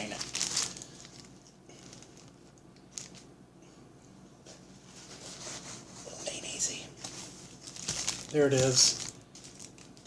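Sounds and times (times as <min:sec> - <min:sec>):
sandwich wrapper crinkling: 0:00.0 - 0:03.3, 0:07.0 - 0:10.0.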